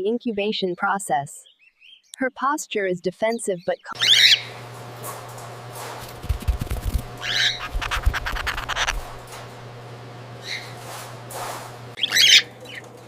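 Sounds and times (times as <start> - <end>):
cockatiel squawking: 4.0 - 4.5, 7.2 - 9.2, 12.0 - 12.5
steady low hum: 4.0 - 13.0
scratchy clicks: 6.0 - 9.3.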